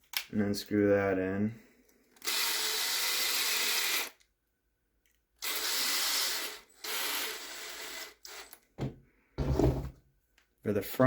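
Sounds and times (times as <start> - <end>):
power screwdriver running: 5.4 - 8.6.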